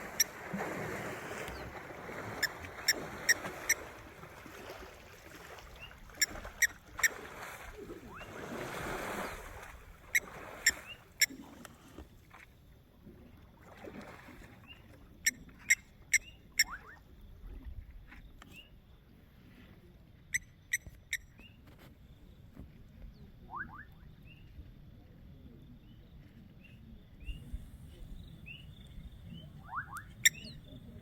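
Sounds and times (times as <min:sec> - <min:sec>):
elephant splashing water: 0:00.0 - 0:12.4, 0:13.6 - 0:14.8.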